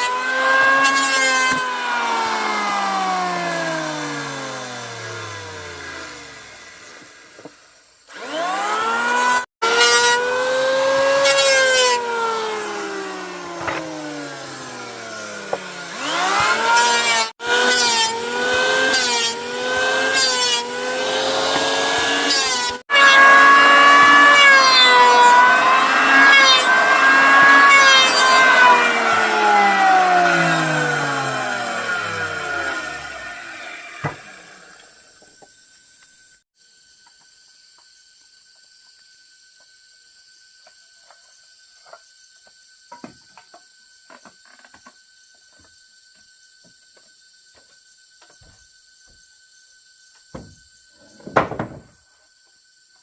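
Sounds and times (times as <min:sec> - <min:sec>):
power saw cutting wood: 0:00.0 - 0:35.5.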